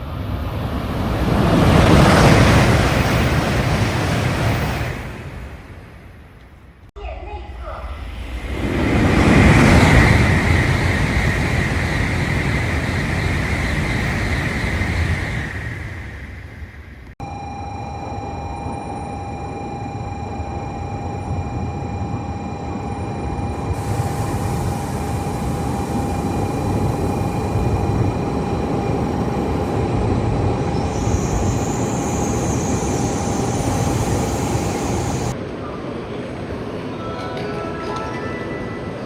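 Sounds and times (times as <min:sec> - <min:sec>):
train rushing rumble: 0:00.0 - 0:17.2, 0:20.6 - 0:39.0
hiss of air: 0:23.8 - 0:27.8.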